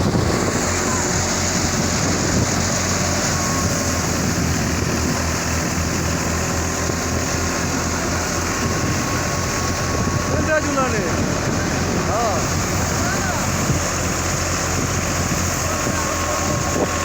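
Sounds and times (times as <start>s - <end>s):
thresher rushing noise: 0.0s - 17.0s
tractor engine humming: 0.0s - 17.0s.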